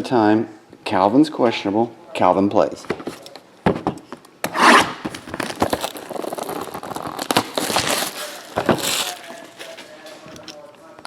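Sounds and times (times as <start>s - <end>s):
cardboard and plastic crinkling: 5.0s - 10.7s.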